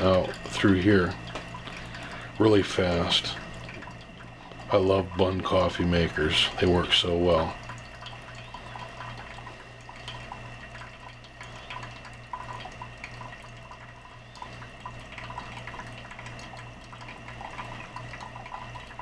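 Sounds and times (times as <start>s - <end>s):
coffee dripping into carafe: 0.0s - 19.0s
coffee maker humming: 0.0s - 19.0s
hot water streaming: 0.0s - 19.0s.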